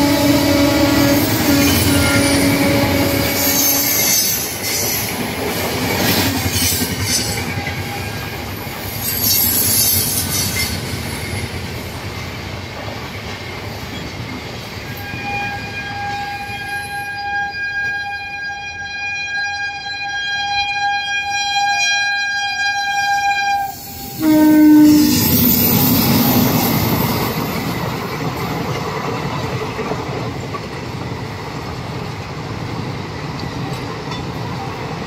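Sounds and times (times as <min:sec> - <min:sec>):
train horn: 0:00.0 - 0:05.1, 0:07.2 - 0:08.4, 0:14.9 - 0:27.1
train wheels clattering over rails: 0:01.2 - 0:14.9, 0:25.1 - 0:35.0.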